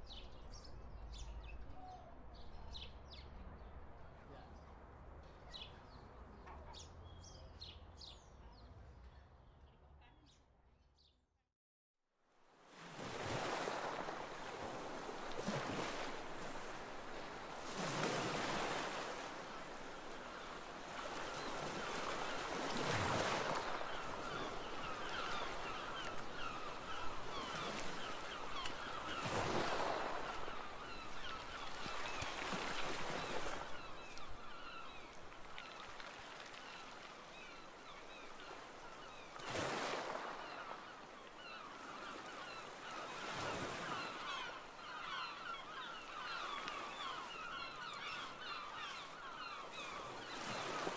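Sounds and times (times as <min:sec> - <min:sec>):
waves washing onto shore: 0:12.6 - 0:50.9.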